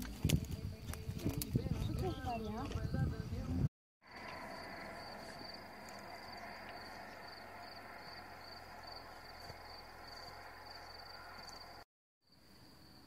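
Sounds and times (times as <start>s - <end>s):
faint outdoor background noise: 0.0s - 13.0s
cricket chirping: 4.0s - 13.0s.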